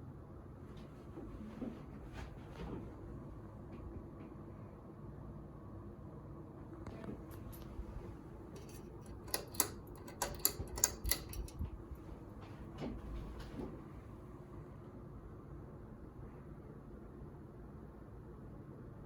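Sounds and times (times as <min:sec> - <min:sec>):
ceiling fan motor hum: 0:00.0 - 0:19.0
sharp clicks and light rattles: 0:06.8 - 0:12.1.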